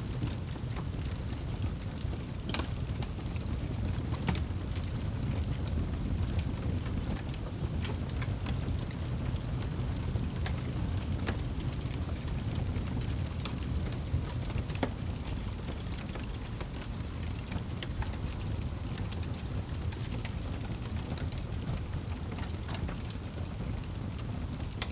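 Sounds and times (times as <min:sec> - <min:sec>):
fire crackling and popping: 0:00.0 - 0:24.9
rain: 0:00.0 - 0:24.9.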